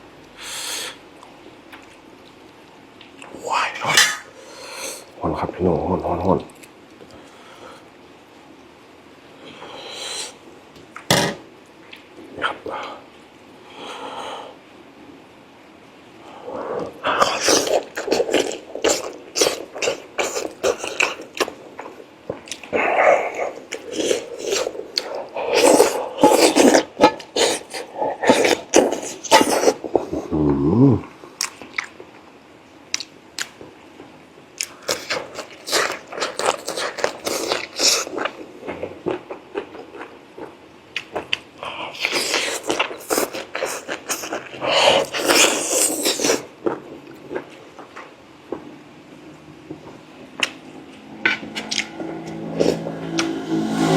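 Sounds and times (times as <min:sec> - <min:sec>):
chewing: 0:16.8 - 0:30.2, 0:34.6 - 0:48.0, 0:51.3 - 0:53.3
chewing and lip-smacking: 0:51.3 - 0:53.3.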